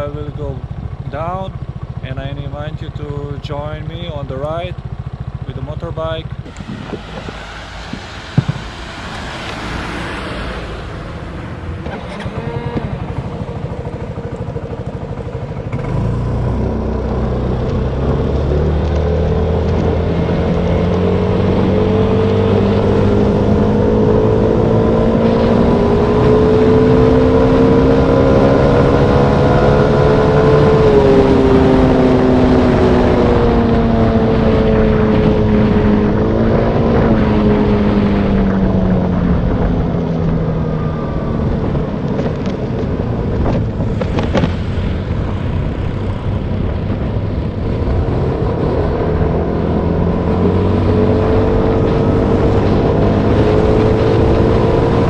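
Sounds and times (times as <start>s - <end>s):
motorbike engine running: 0.0s - 10.0s, 10.8s - 55.0s.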